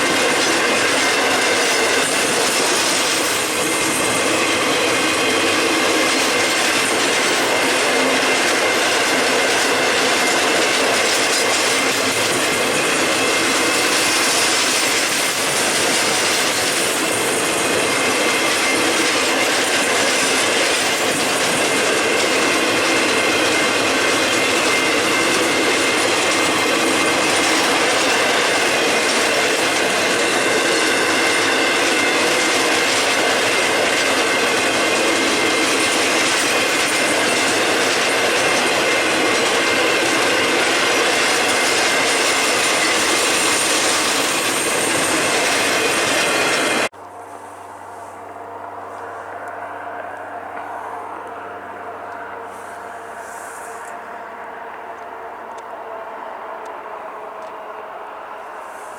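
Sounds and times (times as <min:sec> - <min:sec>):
train wheels rolling on rails: 0:00.0 - 0:58.9.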